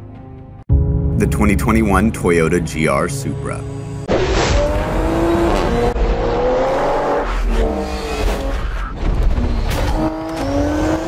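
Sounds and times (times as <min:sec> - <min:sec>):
sports car engine accelerating: 0:04.0 - 0:08.5, 0:09.7 - 0:11.0.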